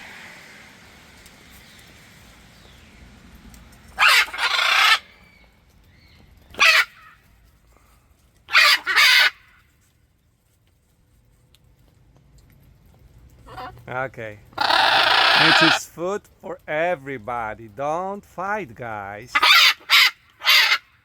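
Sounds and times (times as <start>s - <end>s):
parrots squawking: 4.0s - 5.2s, 6.6s - 7.2s, 8.5s - 9.5s, 13.5s - 13.8s, 14.6s - 15.8s, 19.3s - 20.9s.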